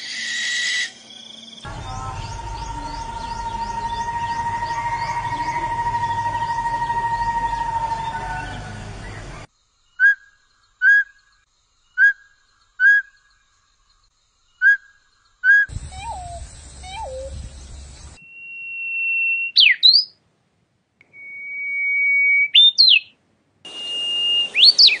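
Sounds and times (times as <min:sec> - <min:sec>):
low down-slurred bird notes: 0:01.6 - 0:09.5, 0:15.7 - 0:19.0
long bird whistles with swoop: 0:23.7 - 0:25.0.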